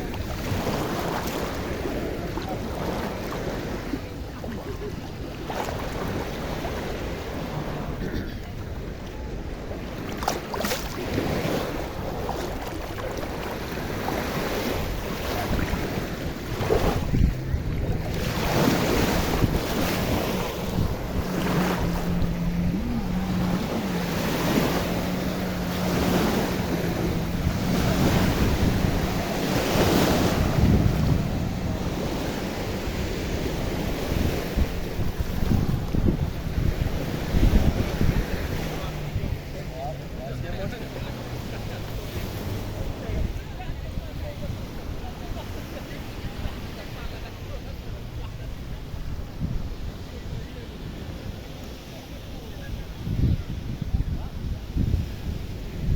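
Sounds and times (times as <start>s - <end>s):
wind buffeting microphone: 0.0s - 45.5s, 48.7s - 51.5s, 52.4s - 55.9s
sea waves washing on shore: 0.0s - 55.9s
low motor hum: 16.2s - 40.2s.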